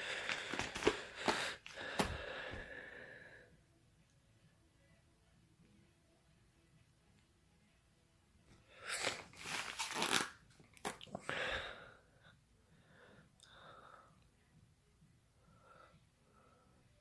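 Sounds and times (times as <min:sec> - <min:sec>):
packaging tearing and crinkling: 0:00.2 - 0:01.5, 0:08.9 - 0:11.0.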